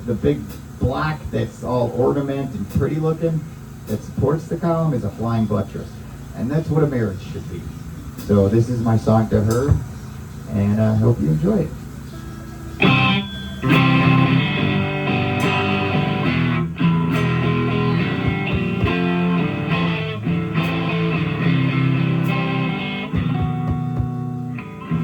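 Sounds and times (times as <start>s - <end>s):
guitar chords: 11.6s - 25.0s.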